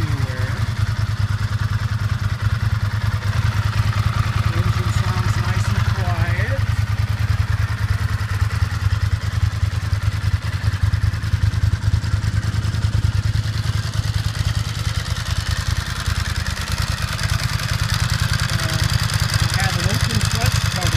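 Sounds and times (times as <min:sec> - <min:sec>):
motorcycle engine idling: 0:00.0 - 0:20.9.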